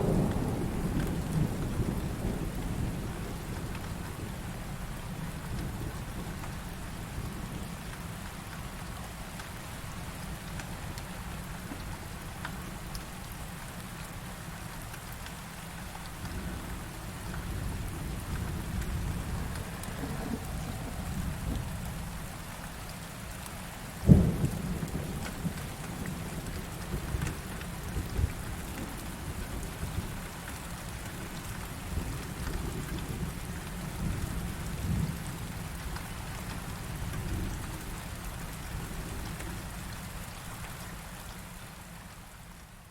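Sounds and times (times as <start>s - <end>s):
low thunder rumbling: 0.0s - 4.5s, 16.4s - 22.3s, 24.0s - 30.1s
steady rain: 0.0s - 42.9s.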